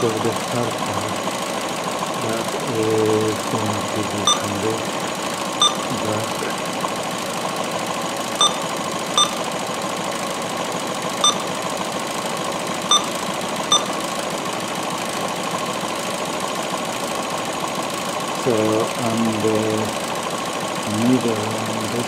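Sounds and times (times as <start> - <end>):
car engine idling roughly: 0.0 - 22.0
short electronic beeps: 4.2 - 4.6, 5.6 - 6.0, 8.4 - 9.4, 11.2 - 11.5, 12.9 - 13.9.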